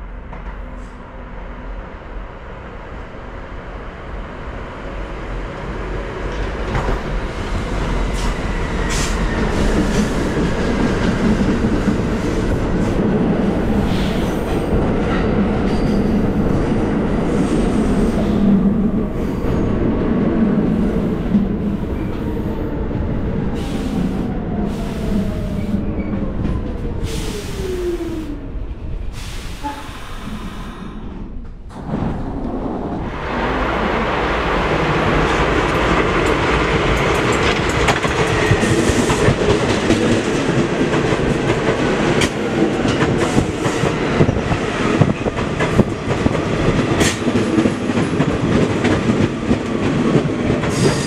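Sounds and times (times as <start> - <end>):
train rumbling past on rails: 0.0 - 51.0.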